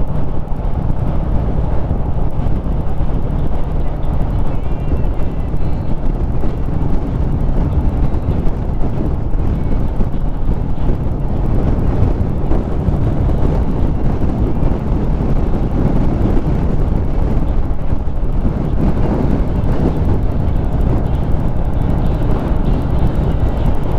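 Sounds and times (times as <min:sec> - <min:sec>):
motorcycle engine running: 0:00.0 - 0:23.9
wind buffeting microphone: 0:00.0 - 0:23.9.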